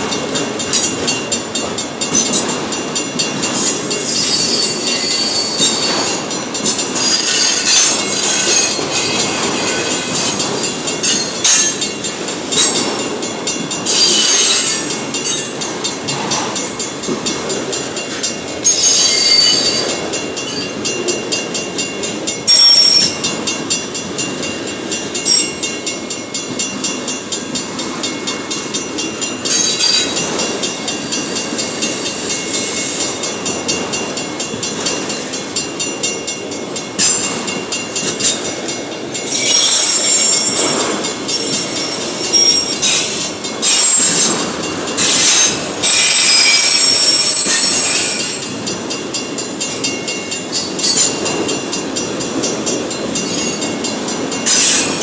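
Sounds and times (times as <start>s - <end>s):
freight cars rumbling on rails: 0.0s - 55.0s
high-pitched wheel squeal: 3.7s - 6.0s, 13.9s - 15.4s, 18.6s - 19.9s, 39.3s - 40.7s, 45.0s - 48.4s.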